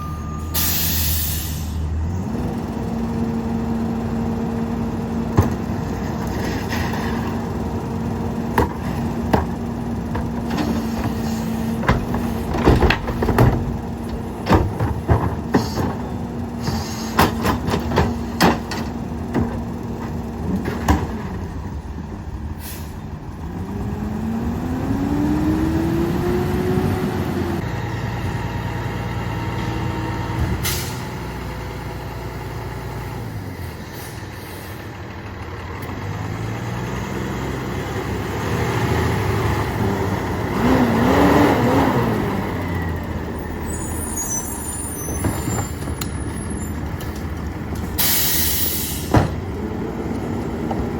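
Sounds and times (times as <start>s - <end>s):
diesel engine revving: 0.0s - 50.9s
high squeal: 43.4s - 46.8s.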